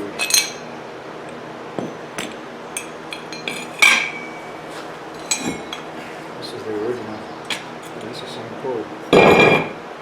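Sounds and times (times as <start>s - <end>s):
metal clank with ringing: 1.8s - 4.4s, 9.1s - 9.8s.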